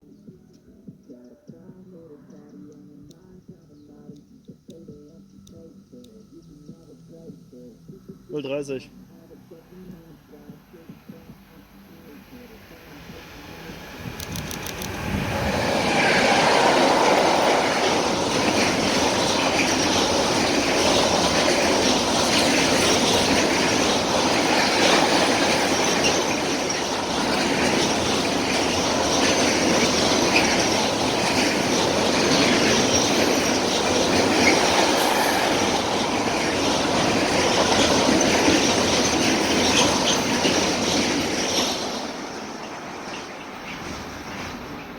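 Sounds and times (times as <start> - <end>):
freight train passing: 8.6 - 44.9
wheels clacking over rail joints: 13.1 - 44.9.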